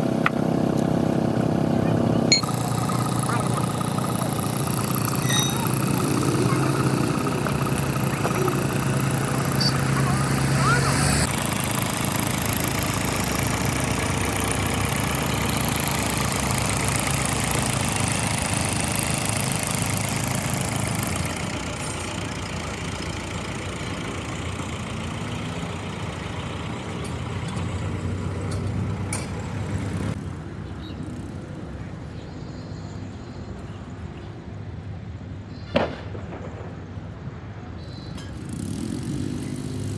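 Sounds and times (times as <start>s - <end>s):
vehicle engine running: 0.0s - 30.2s, 38.2s - 39.9s.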